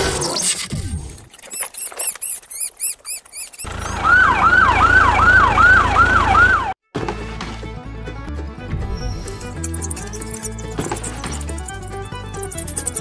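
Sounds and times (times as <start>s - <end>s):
high-pitched squeaks: 0.2s - 3.7s, 9.0s - 13.0s
police siren yelp: 3.7s - 6.8s.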